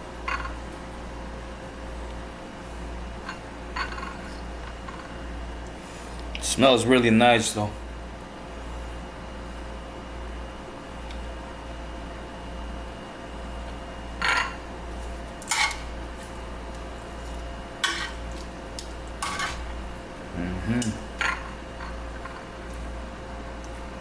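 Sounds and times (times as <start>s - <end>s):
steady low hum: 0.0s - 24.0s
dishes and utensils clinking: 14.2s - 14.6s, 15.4s - 15.9s, 17.8s - 18.5s, 19.2s - 19.7s, 20.8s - 22.5s.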